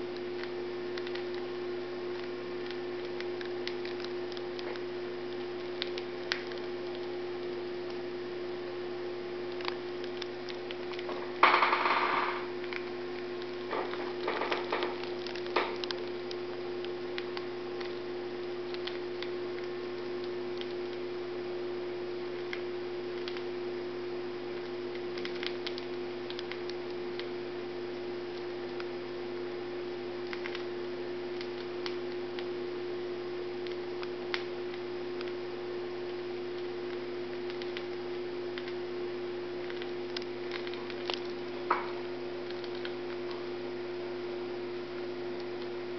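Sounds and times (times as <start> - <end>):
electrical hum: 0.0 - 45.9
bird crunching cereal: 9.5 - 18.0.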